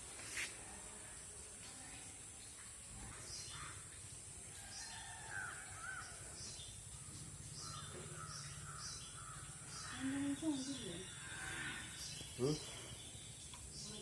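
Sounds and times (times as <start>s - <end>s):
bird chirps: 7.6s - 14.0s.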